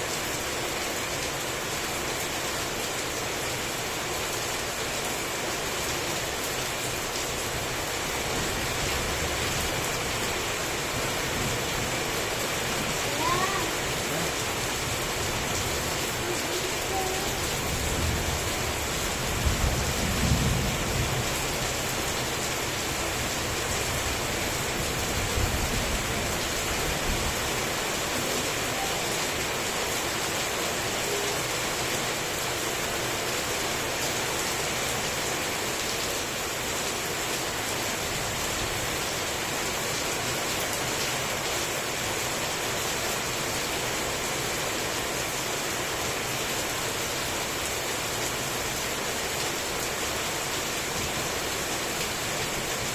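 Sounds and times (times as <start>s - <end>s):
heavy rain falling: 0.0s - 52.9s
low thunder rumbling: 17.6s - 21.4s.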